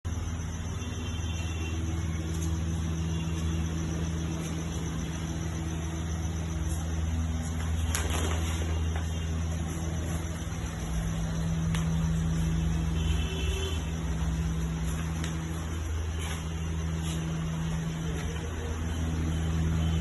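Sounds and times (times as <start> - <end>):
machine spindle hum: 0.0 - 20.0.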